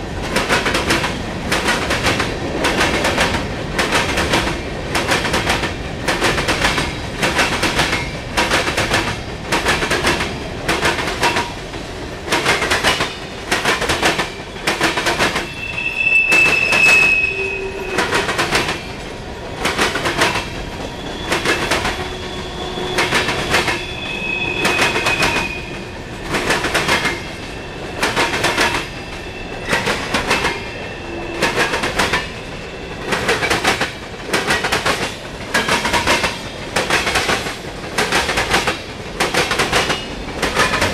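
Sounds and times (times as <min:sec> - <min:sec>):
train wheels clattering on rail joints: 0:00.2 - 0:15.6, 0:17.9 - 0:22.2, 0:22.8 - 0:24.0, 0:24.6 - 0:30.6, 0:31.3 - 0:40.9
high wheel squeal: 0:15.3 - 0:19.6, 0:20.8 - 0:25.9, 0:27.2 - 0:28.1, 0:28.8 - 0:33.2.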